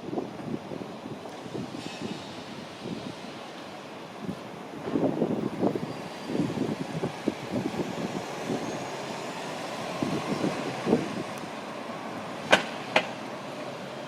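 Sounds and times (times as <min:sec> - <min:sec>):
street traffic with buses: 0:00.0 - 0:14.0.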